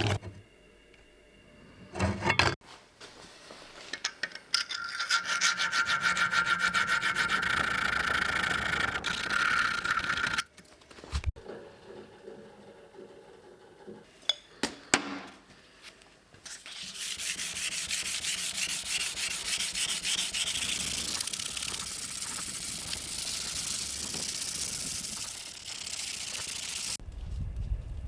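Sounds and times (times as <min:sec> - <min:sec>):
hand sanding strokes: 0:05.2 - 0:07.8, 0:16.5 - 0:27.0.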